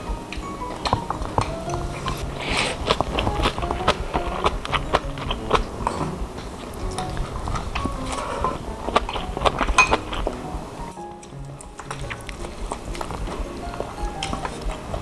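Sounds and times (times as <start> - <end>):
light background music: 0.0 - 15.0
crisp clicks and crunches: 0.3 - 10.6.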